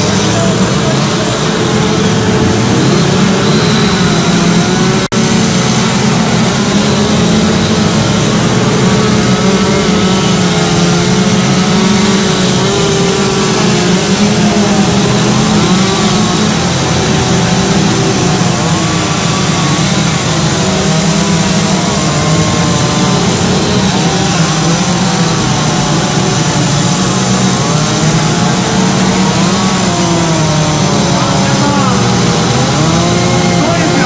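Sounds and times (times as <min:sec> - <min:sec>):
chainsaw carving wood: 0:00.0 - 0:34.0.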